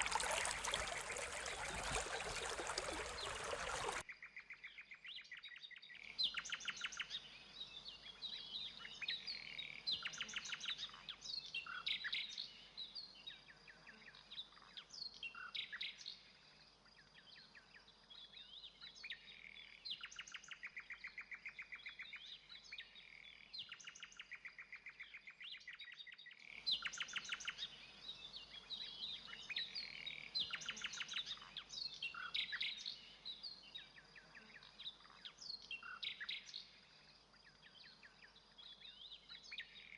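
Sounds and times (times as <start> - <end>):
birdsong trills and whistles: 0.0 - 4.0.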